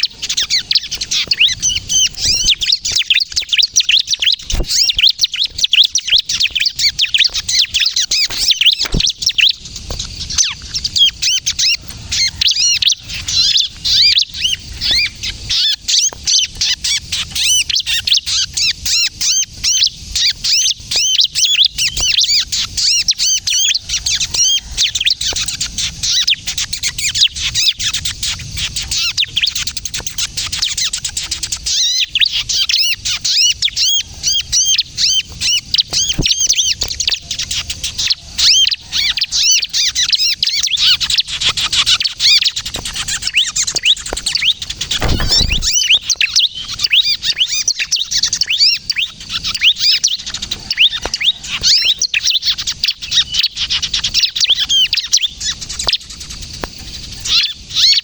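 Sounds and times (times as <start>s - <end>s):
prinia singing high chirps: 0.0s - 15.9s.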